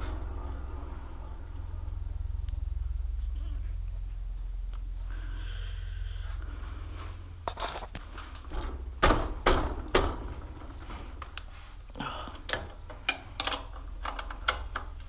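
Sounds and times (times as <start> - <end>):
low rumble: 0.0 - 15.0
metal tools knocking and clattering: 12.5 - 14.9.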